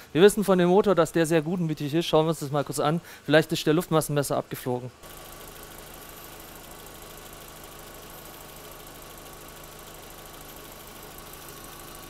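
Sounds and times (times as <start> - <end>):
petrol engine idling: 5.0 - 12.0.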